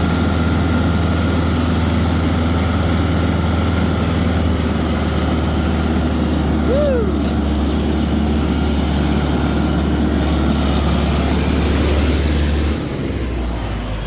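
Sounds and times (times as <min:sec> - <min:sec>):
tractor engine humming: 0:00.0 - 0:14.0.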